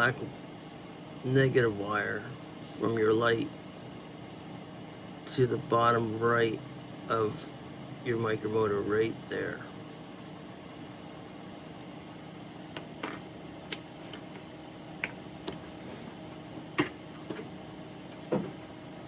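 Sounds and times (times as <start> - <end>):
steady low hum: 0.0 - 19.0
small clicks and taps of tweezers: 10.0 - 11.9.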